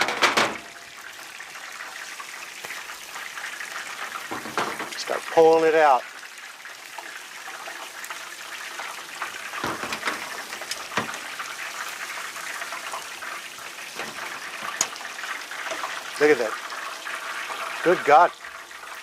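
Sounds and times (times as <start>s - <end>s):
frying oil sizzling and popping: 0.0s - 19.0s.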